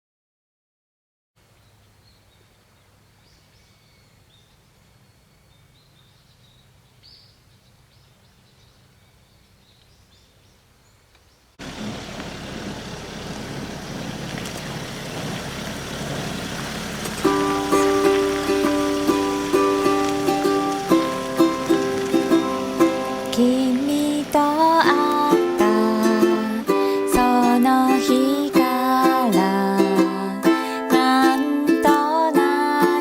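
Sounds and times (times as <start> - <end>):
loud steady rushing noise: 15.2 - 26.8.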